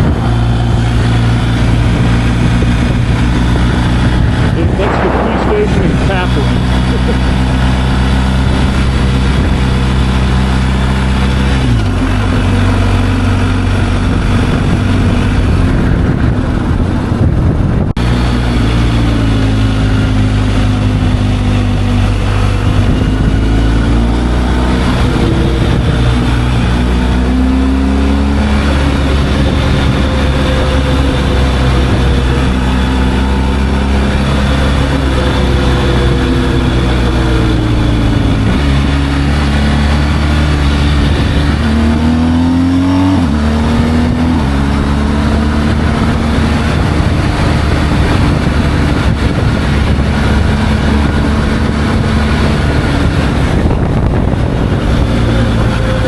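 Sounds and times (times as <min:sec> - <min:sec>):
motorcycle engine shifting gears: 0:00.0 - 0:56.0
wind rumble on microphone: 0:00.0 - 0:56.0.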